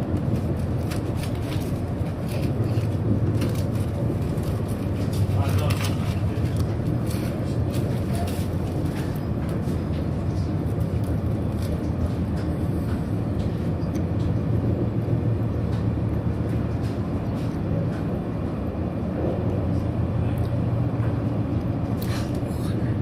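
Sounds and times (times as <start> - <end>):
train interior rumble: 0.0 - 23.0.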